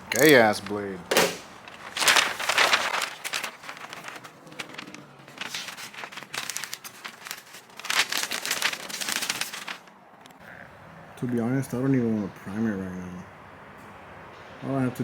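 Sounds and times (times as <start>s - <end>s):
material crinkling and crackling: 0.1s - 9.9s.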